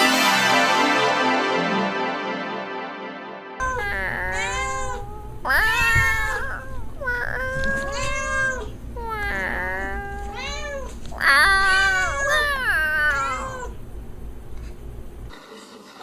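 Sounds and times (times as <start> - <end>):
cat meowing: 3.6 - 13.8
faint low hum: 3.6 - 15.4.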